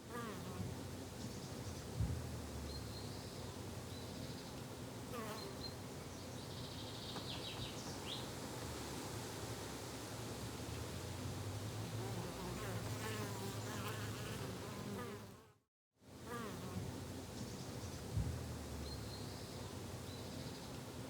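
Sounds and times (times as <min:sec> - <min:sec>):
low thump: 0:01.9 - 0:02.6, 0:18.1 - 0:18.6.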